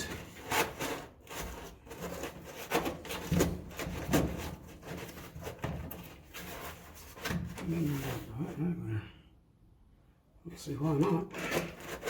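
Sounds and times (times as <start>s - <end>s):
parts knocking and scraping: 0.0s - 8.3s, 11.0s - 12.0s.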